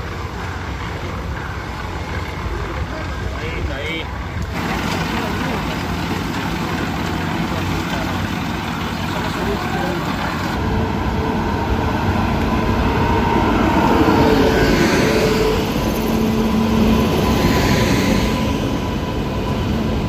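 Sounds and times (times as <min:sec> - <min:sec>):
locomotive humming tones: 0:00.0 - 0:20.0
train wheels rumbling on rail: 0:00.0 - 0:20.0.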